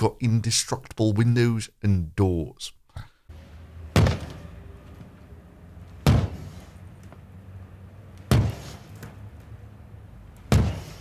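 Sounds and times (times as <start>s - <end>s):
heavy blows on a car: 3.9s - 4.5s, 6.0s - 6.7s, 8.2s - 9.2s, 10.5s - 11.0s.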